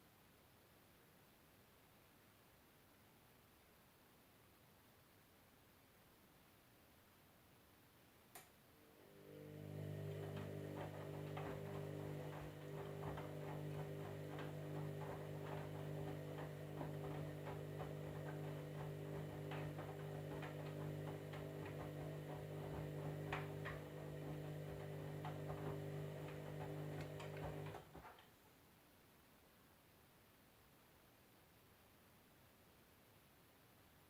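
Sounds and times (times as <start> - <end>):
washing machine motor hum: 8.8 - 28.1.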